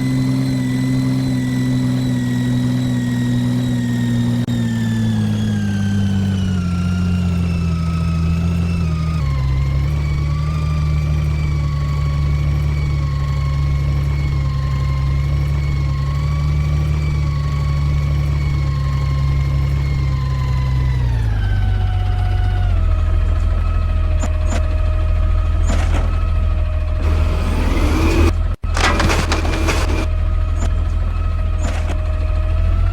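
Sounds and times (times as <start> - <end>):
diesel engine running: 26.8 - 30.1
hydraulic pump whine: 27.0 - 30.1.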